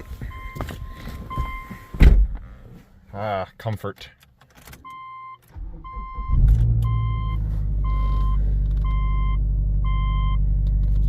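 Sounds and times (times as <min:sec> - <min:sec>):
car engine starting and idling: 0:04.3 - 0:11.0.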